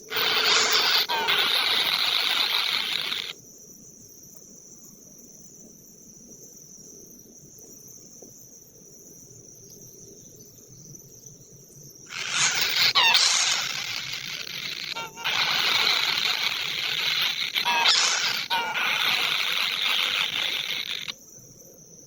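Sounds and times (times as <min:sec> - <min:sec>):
insects buzzing chorus: 0:00.0 - 0:03.4, 0:12.1 - 0:22.0
faint high-pitched insect drone: 0:00.0 - 0:22.0.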